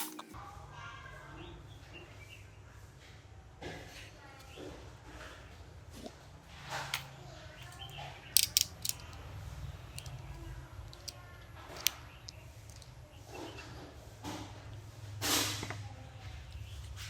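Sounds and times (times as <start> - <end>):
sharp tool clicks: 8.4 - 9.2, 10.9 - 11.1.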